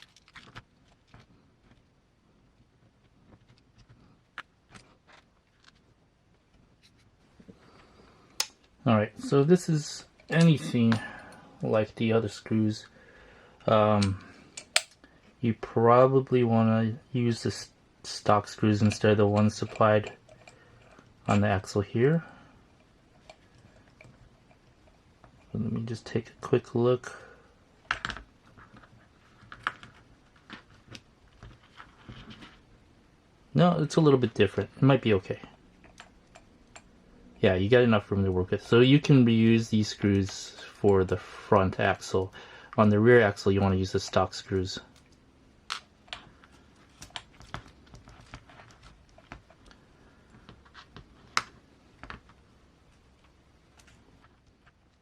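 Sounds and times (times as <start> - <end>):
screwdriver and small parts clicking: 14.0 - 15.0
small parts clicking and tapping: 14.0 - 15.1, 18.7 - 21.8, 35.4 - 37.0, 39.8 - 55.0.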